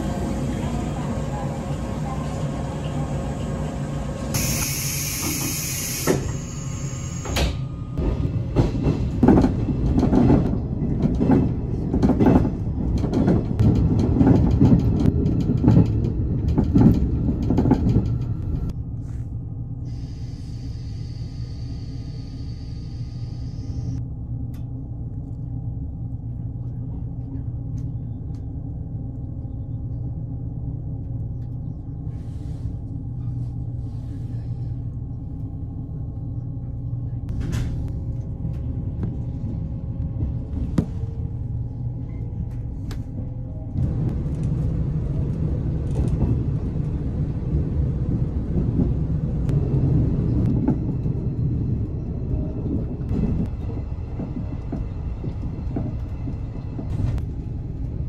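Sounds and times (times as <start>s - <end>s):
train cabin low rumble: 0.0s - 58.0s.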